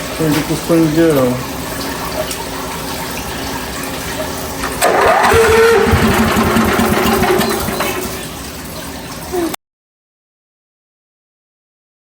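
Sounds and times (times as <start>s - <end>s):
running water: 0.0s - 9.6s
pressure washer running: 4.7s - 8.4s.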